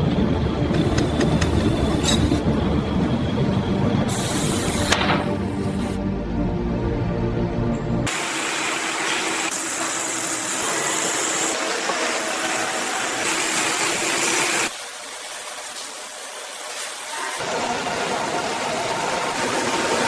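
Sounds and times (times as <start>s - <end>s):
gas furnace burning: 0.0s - 6.2s.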